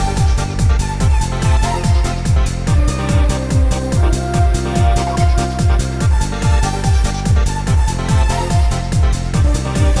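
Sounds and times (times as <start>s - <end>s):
electronic dance music: 0.0s - 10.0s
fast kick-drum beat: 0.0s - 10.0s
held synth tones: 4.0s - 6.2s.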